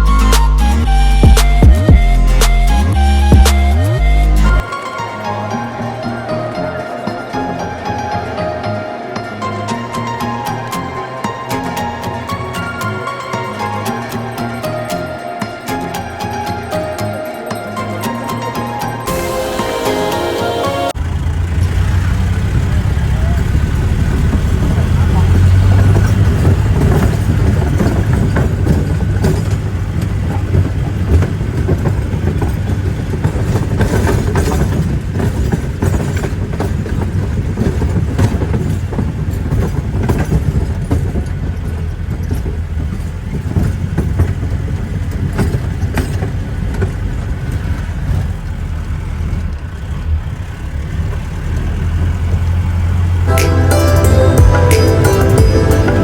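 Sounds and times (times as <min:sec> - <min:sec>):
engine low drone: 0:20.9 - 0:56.0
vehicle rattling and knocking: 0:21.0 - 0:56.0.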